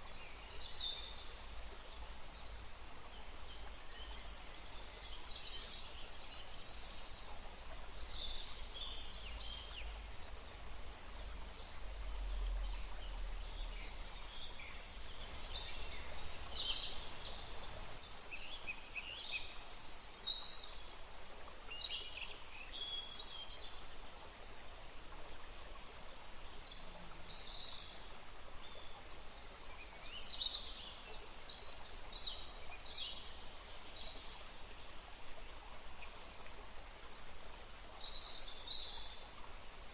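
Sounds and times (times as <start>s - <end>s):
wind in trees: 0.0s - 39.9s.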